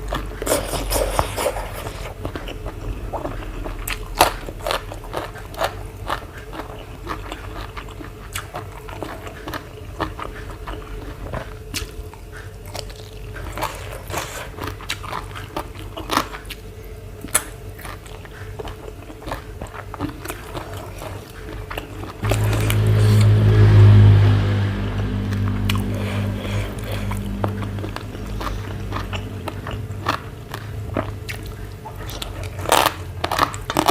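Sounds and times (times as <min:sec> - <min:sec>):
chewing and crunching food: 0:00.0 - 0:23.4, 0:25.3 - 0:33.9
loud steady low sound: 0:22.2 - 0:31.2.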